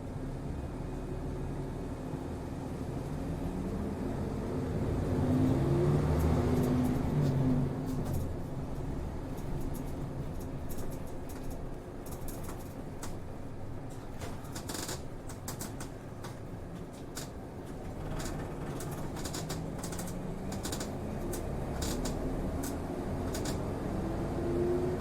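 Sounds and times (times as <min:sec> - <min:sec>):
bus diesel engine: 0:00.0 - 0:25.0
clicks and rattles in bus cabin: 0:05.2 - 0:23.9.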